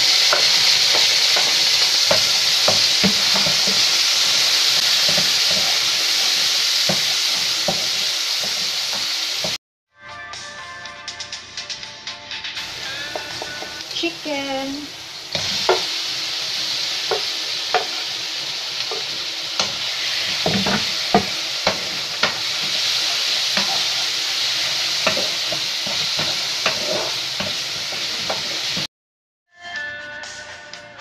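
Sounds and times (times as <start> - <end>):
chicken sizzling in a wok: 0.0 - 9.6, 12.6 - 28.9
music: 9.9 - 22.8, 29.5 - 31.0.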